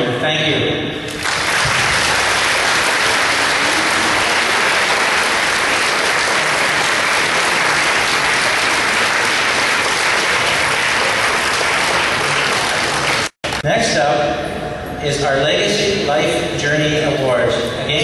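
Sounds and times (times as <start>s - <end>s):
large crowd applauding: 1.1s - 13.6s.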